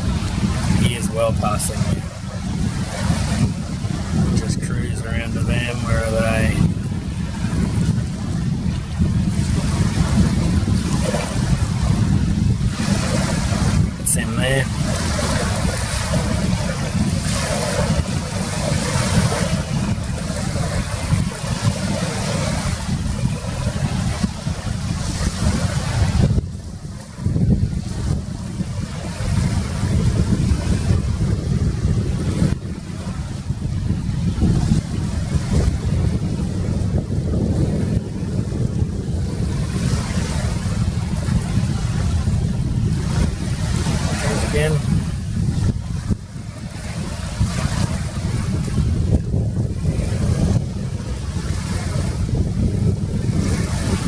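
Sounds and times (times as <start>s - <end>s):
wind buffeting microphone: 0.0s - 54.0s
sea surf hissing: 13.0s - 26.3s, 44.1s - 44.9s.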